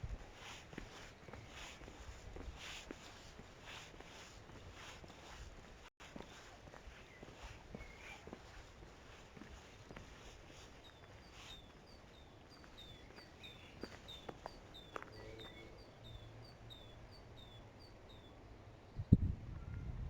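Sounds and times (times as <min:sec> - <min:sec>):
small bird chirping: 0:06.3 - 0:19.1.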